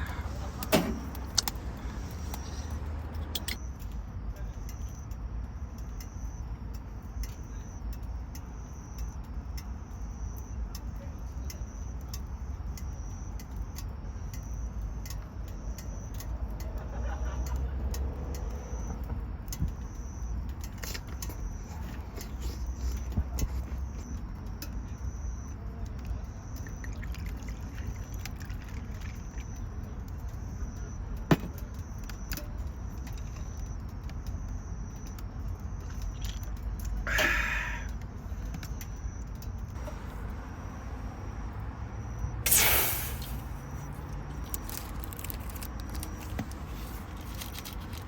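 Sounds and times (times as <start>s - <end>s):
short high chirp: 42.5s - 43.8s
campfire crackling and popping: 42.5s - 48.0s.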